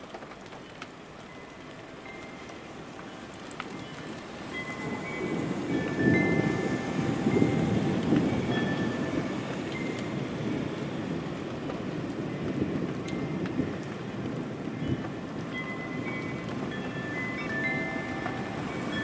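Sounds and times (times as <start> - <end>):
rain pattering on a window: 0.0 - 19.0
distant thunder rumble: 4.6 - 19.0.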